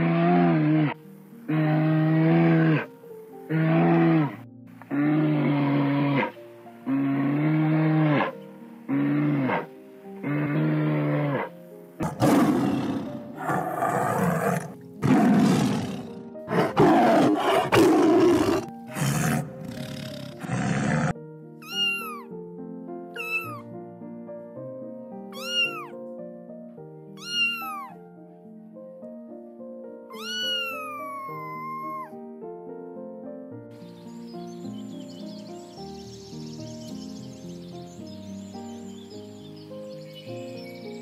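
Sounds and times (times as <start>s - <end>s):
soft background music: 0.0s - 41.0s
cow mooing: 3.5s - 21.1s
harsh animal roars: 6.9s - 9.7s, 10.3s - 21.2s.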